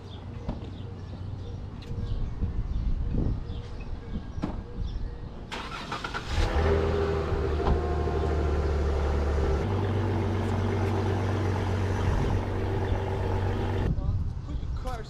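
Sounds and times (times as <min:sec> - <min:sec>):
car engine cranking: 0:05.5 - 0:13.9
car engine idling: 0:07.0 - 0:13.9.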